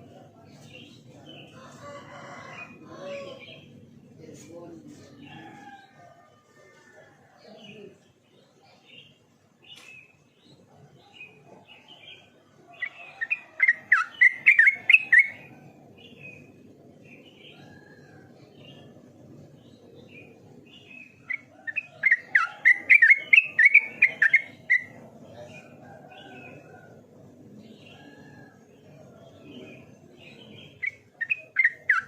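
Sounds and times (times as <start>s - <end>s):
bird warbling song: 7.5s - 27.0s, 27.6s - 32.0s.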